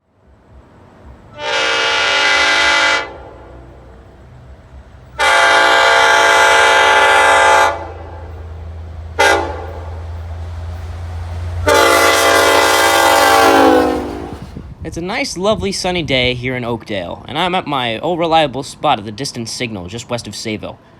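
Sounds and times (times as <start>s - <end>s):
train rumbling: 0.0s - 20.9s
train horn: 1.3s - 4.0s, 5.2s - 8.4s, 9.2s - 10.0s, 11.6s - 14.6s.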